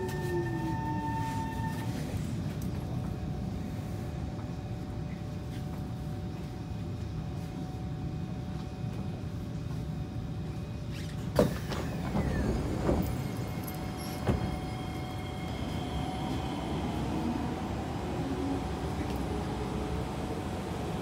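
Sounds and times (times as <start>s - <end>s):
train wheels rumbling on track: 11.2s - 21.0s.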